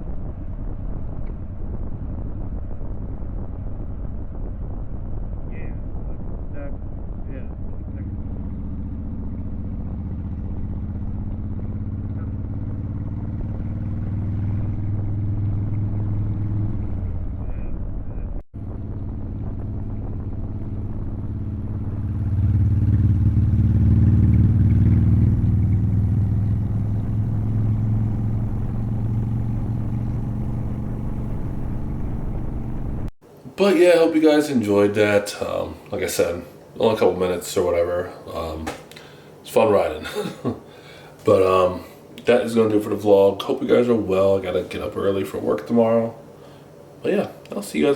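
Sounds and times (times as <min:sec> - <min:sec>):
motorcycle engine running: 0:00.0 - 0:33.1.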